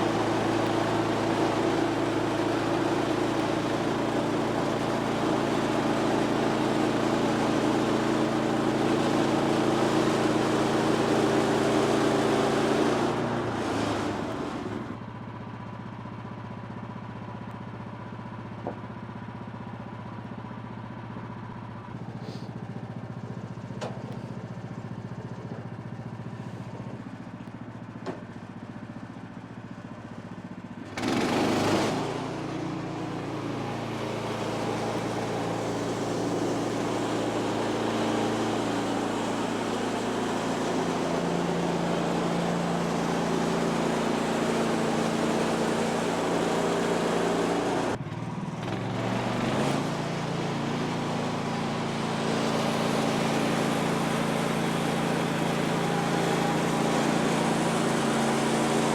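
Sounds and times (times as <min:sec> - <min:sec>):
gas engine running: 0:00.0 - 0:15.3, 0:29.6 - 0:58.9
band saw cutting log: 0:31.0 - 0:48.0, 0:48.8 - 0:58.9.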